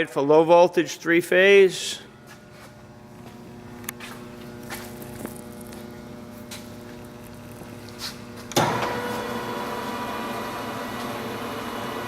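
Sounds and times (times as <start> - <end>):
milling machine motor whining: 2.1 - 12.0.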